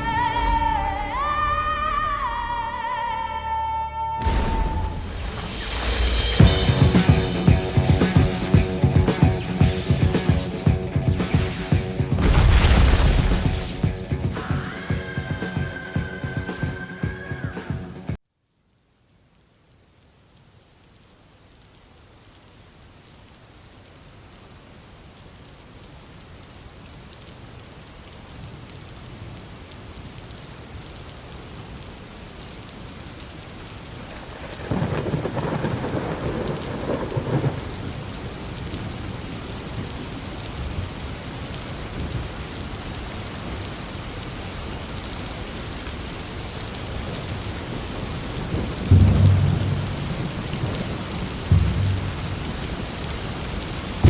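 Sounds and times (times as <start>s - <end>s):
heavy rain: 0.0s - 54.0s
thunder rumbling: 4.2s - 17.0s, 34.0s - 40.9s, 47.1s - 54.0s.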